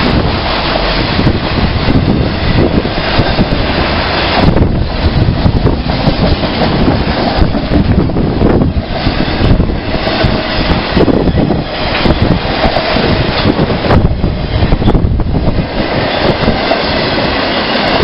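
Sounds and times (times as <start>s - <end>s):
train wheels rumbling on rail: 0.0s - 18.0s
wind buffeting microphone: 0.0s - 18.0s.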